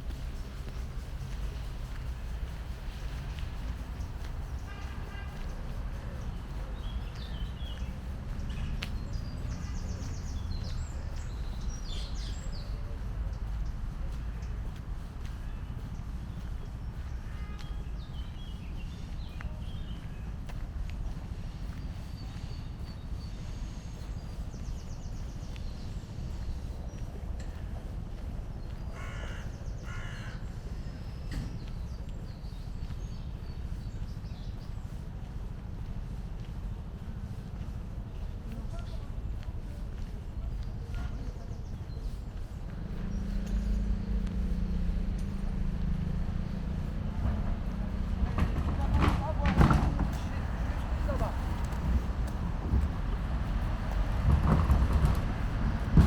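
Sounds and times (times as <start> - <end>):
low background rumble: 0.0 - 56.0
songbirds chirping: 0.0 - 56.0
crow cawing: 29.0 - 30.4.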